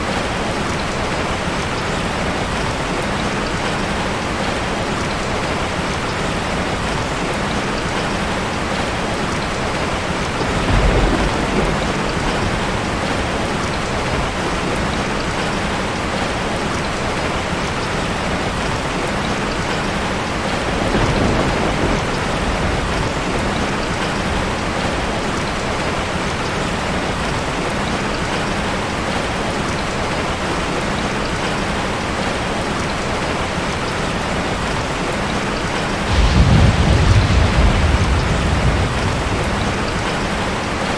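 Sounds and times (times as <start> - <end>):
low rumble: 36.1 - 40.7.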